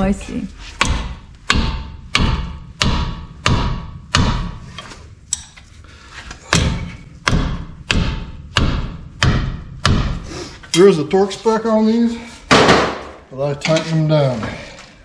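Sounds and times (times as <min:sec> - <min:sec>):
hammer ringing on metal: 0:00.8 - 0:04.6, 0:06.5 - 0:10.2.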